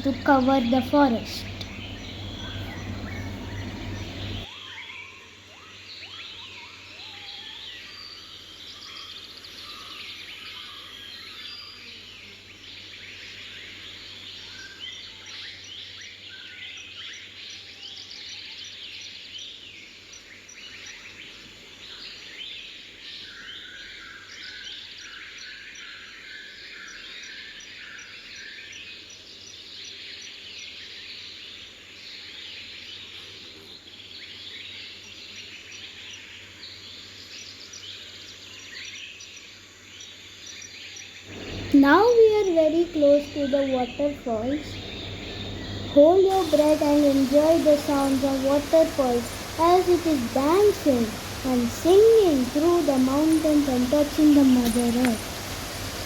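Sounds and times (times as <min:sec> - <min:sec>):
faint insect ticking: 0:00.0 - 0:04.5, 0:41.3 - 0:56.0
forest birds chirping and trilling: 0:00.0 - 0:56.0.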